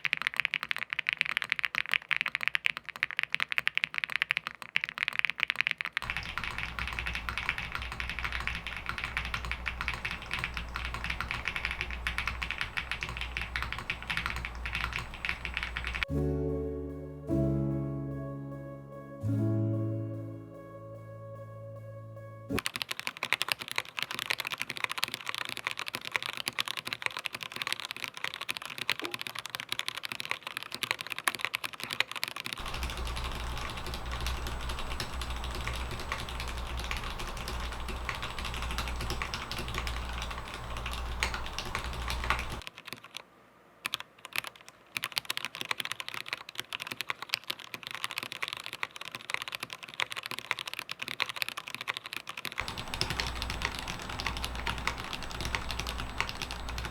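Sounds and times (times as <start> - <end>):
mechanical keyboard typing: 0.0 - 16.1, 22.6 - 43.2, 43.8 - 56.9
steady low hum: 6.0 - 16.1, 32.6 - 42.6, 52.6 - 56.9.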